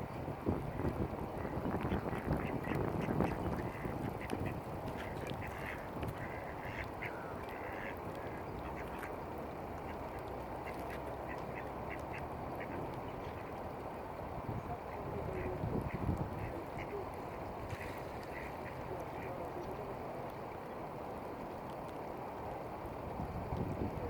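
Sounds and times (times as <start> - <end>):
ducks quacking: 0.7 - 9.2, 9.8 - 13.5, 14.8 - 19.8.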